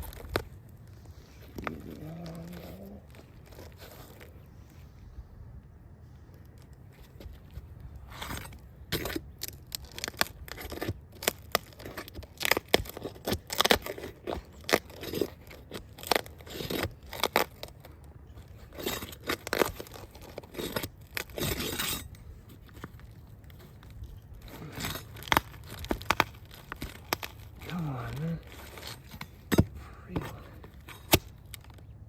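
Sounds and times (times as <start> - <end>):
roof shingles tearing loose: 8.1 - 31.9.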